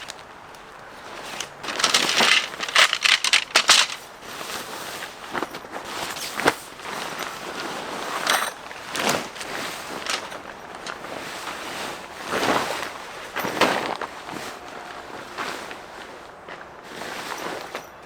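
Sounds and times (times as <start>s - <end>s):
footsteps crunching: 0.0s - 11.3s
rustling: 0.0s - 14.5s.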